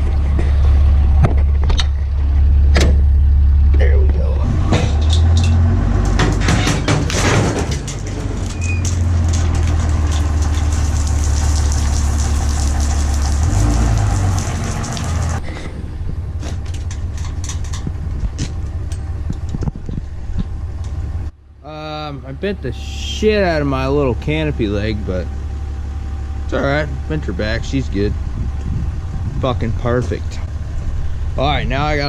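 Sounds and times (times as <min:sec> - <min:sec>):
truck engine droning: 0:00.0 - 0:32.0
short knocks and clatter: 0:04.7 - 0:11.0.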